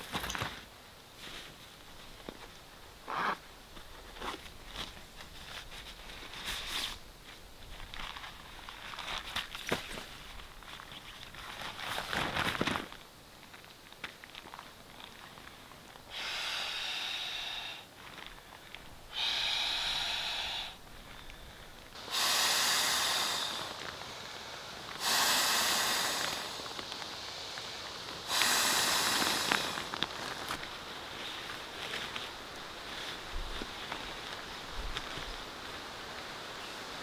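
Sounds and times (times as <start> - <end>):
puffs of air inflating pad: 16.1 - 17.9, 19.1 - 20.8, 22.0 - 30.0.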